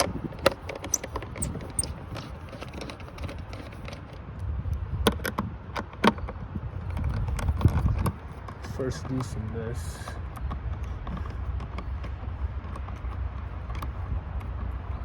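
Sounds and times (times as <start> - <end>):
hands clicking loose fittings: 0.0 - 4.0.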